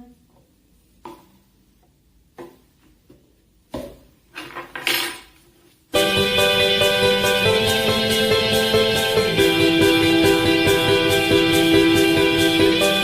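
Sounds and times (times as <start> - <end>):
guitar music: 6.0 - 13.0.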